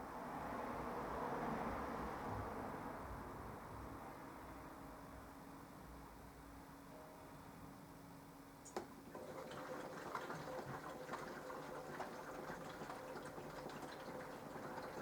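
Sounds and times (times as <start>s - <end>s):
washing machine humming: 8.6s - 15.0s.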